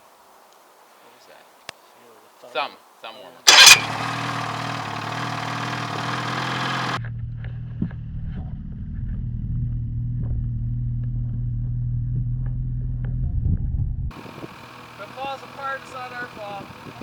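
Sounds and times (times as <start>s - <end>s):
snowmobile engine idling: 3.5s - 7.0s, 14.1s - 17.0s.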